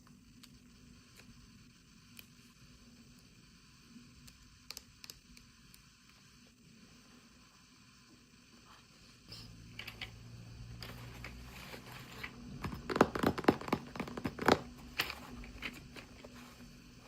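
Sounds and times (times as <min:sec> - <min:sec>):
sharp clicks and crackles: 0:00.0 - 0:02.5, 0:04.2 - 0:06.3.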